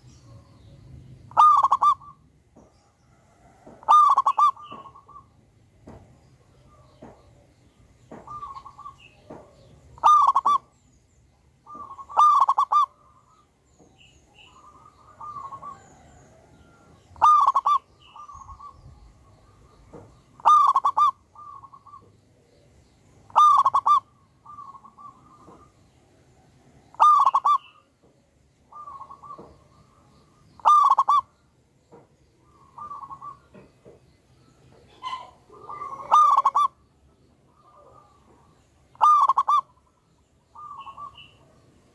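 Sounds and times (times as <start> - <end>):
dove cooing: 1.3 - 2.2, 3.2 - 5.3, 8.1 - 10.7, 11.7 - 13.4, 14.4 - 22.2, 23.3 - 25.8, 26.9 - 27.9, 28.7 - 31.3, 32.4 - 33.6, 34.8 - 36.8, 37.5 - 41.6.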